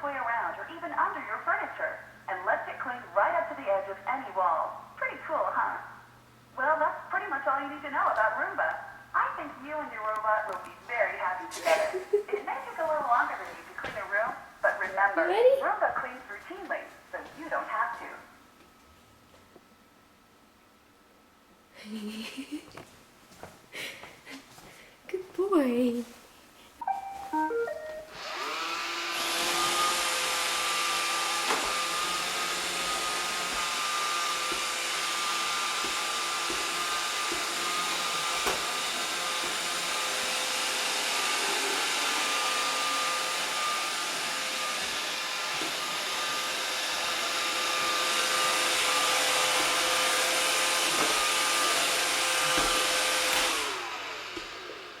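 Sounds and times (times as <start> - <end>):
robot vacuum motors whining: 28.1 - 55.0.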